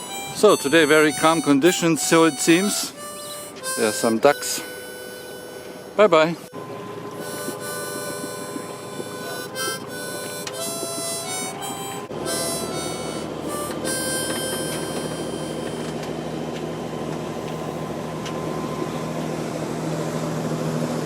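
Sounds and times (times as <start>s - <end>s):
harmonica-like music chords: 0.0s - 16.6s
boat engine droning: 0.0s - 21.0s.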